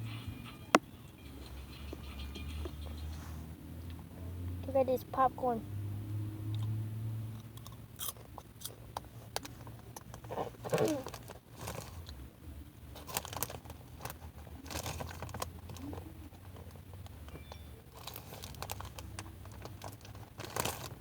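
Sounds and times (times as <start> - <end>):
popcorn crunching while chewed: 7.4 - 12.2, 13.0 - 21.0.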